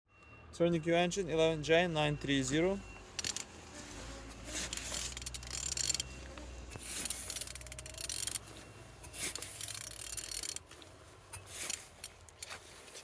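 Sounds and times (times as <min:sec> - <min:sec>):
engine turned over by hand: 0:03.1 - 0:13.0.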